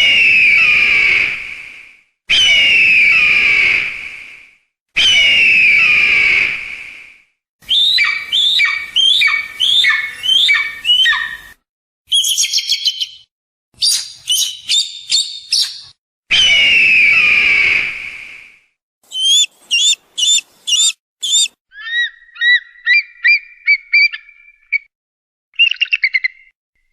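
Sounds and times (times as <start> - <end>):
hawk screaming and calling: 5.0 - 6.5, 7.6 - 11.5, 19.1 - 24.4.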